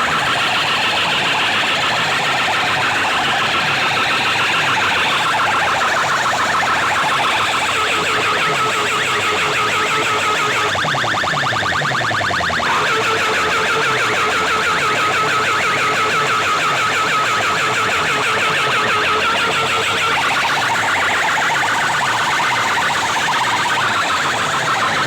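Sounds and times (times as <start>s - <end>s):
electronic siren-like tones: 0.0s - 25.0s
fast buzzing pulse: 12.6s - 21.8s.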